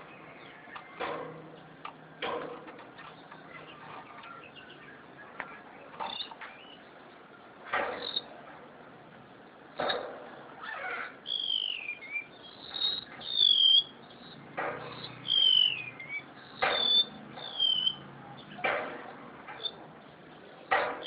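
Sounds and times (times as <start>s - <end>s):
bird singing high whistled notes: 11.2s - 14.0s, 14.9s - 18.0s.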